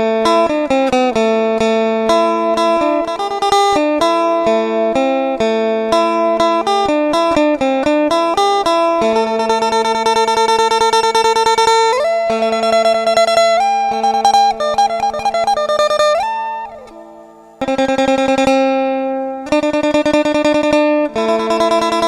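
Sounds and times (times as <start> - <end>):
plucked string instrument melody: 0.0 - 22.0.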